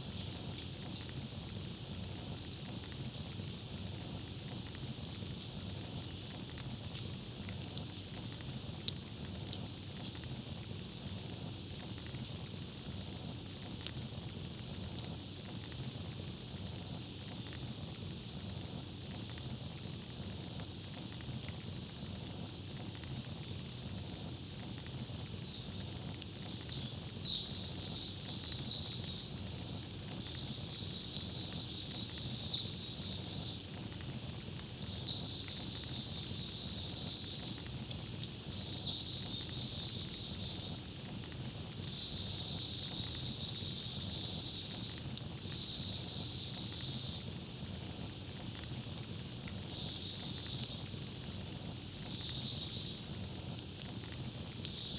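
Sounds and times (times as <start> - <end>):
campfire crackling and popping: 0.0 - 54.9
low rumble of flames: 0.0 - 54.9
songbird whistle and trill: 26.6 - 29.3, 30.4 - 33.6, 34.9 - 37.4, 38.8 - 40.8.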